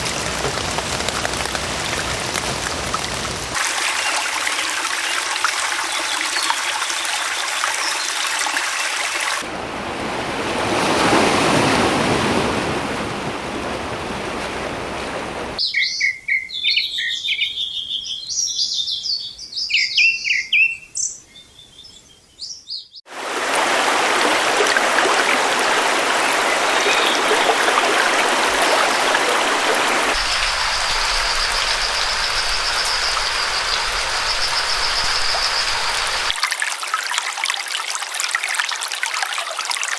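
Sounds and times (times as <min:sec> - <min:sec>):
stream water rushing: 0:00.0 - 0:15.6, 0:23.1 - 0:39.9
birds chirping: 0:15.6 - 0:23.0, 0:29.9 - 0:36.4.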